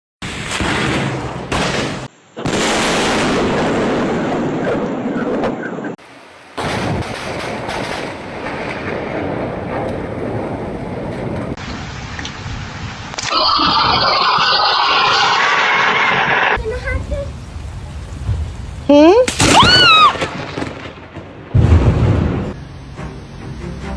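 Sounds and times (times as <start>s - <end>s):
thunder cracking and rumbling: 0.2s - 14.5s, 16.2s - 23.0s
heavy rain: 6.0s - 23.9s.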